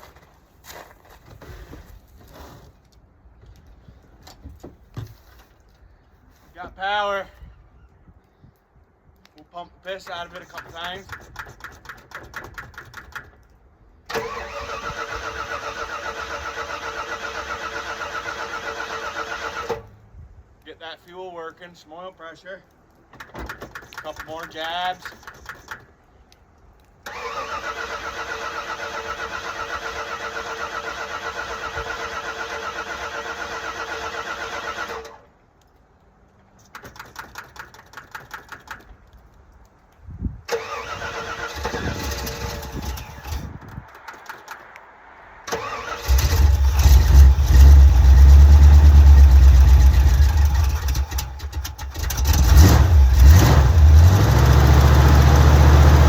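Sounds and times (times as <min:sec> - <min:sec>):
starter cranking engine: 0:14.1 - 0:19.8, 0:27.1 - 0:35.2, 0:40.5 - 0:44.6, 0:45.5 - 0:56.0
car engine running loud: 0:52.1 - 0:56.0.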